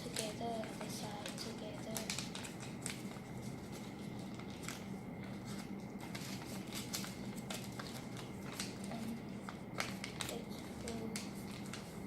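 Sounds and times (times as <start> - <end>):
low background hum: 0.0 - 12.0
paper folding rustles: 0.0 - 12.0.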